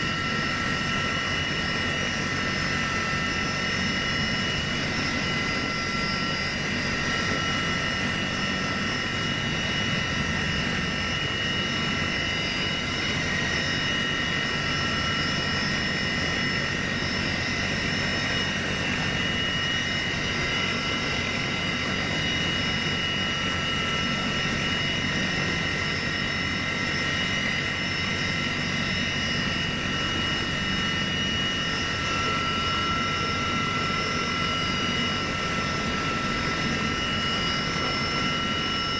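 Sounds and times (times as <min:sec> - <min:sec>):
aircraft turbine engine whine: 0:00.0 - 0:38.9.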